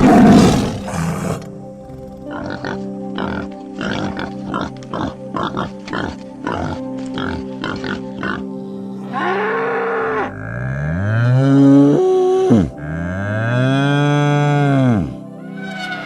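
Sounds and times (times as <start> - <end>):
cow mooing: 9.0 - 16.0.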